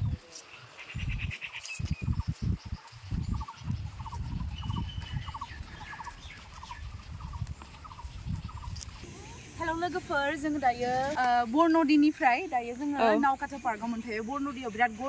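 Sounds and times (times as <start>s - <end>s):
wind rumble on microphone: 0.0s - 0.3s, 0.9s - 11.8s.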